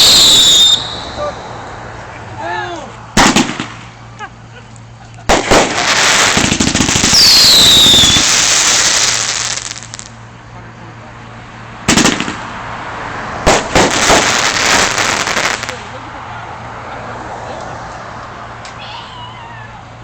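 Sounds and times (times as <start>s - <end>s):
firework bangs: 0.0s - 1.4s, 3.1s - 4.0s, 5.3s - 10.1s, 11.8s - 12.6s, 13.4s - 16.0s
firework falling whistle: 0.0s - 1.4s, 5.4s - 9.8s
fireworks crackling: 0.0s - 1.8s, 3.1s - 10.2s, 11.9s - 12.5s, 13.4s - 16.1s.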